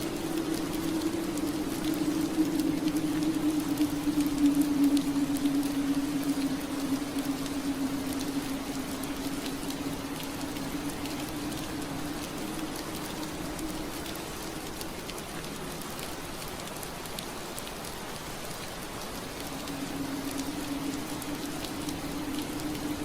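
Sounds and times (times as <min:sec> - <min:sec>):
low steady hum: 0:00.0 - 0:16.2
rain pattering on window glass: 0:00.0 - 0:23.0.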